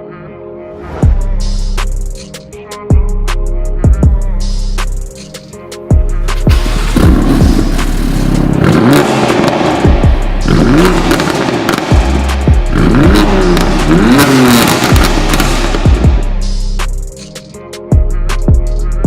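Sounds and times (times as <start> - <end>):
music with thumping beat: 1.0 - 19.0
car engine revving: 6.4 - 16.9.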